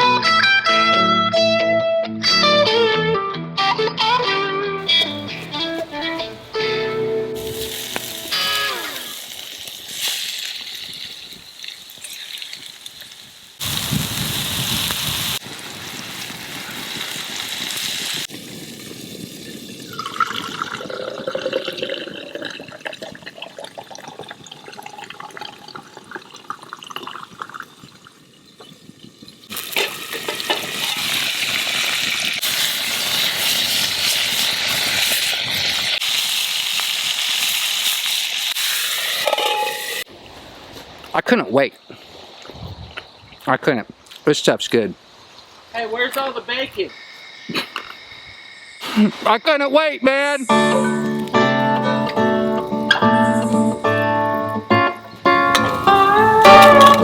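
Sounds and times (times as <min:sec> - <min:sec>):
food sizzling in a pan: 0:07.4 - 0:21.1, 0:27.7 - 0:40.5, 0:45.0 - 0:54.4
sliding tones: 0:50.1 - 0:57.0.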